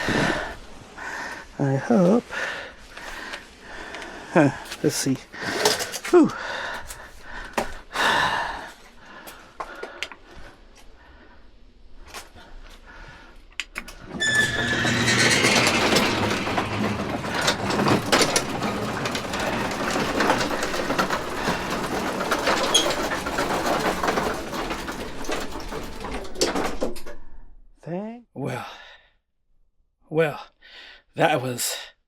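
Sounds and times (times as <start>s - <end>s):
garage door rattling: 13.8s - 27.5s
garage door motor squeal: 14.0s - 20.6s, 22.5s - 23.9s.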